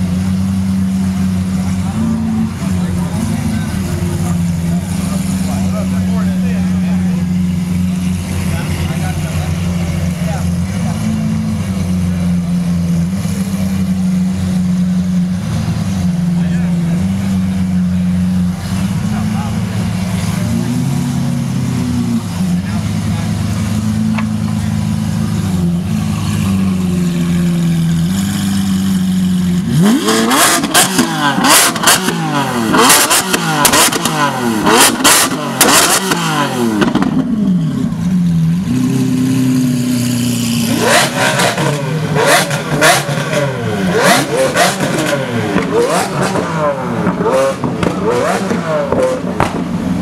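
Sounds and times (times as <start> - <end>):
car engine revving: 0.0 - 50.0
exhaust crackles: 0.0 - 50.0.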